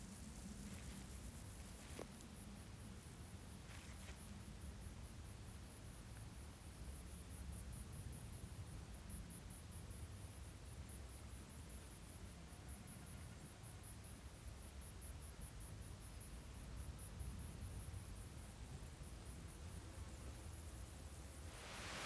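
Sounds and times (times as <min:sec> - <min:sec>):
faint low rumble: 0:18.1 - 0:22.0.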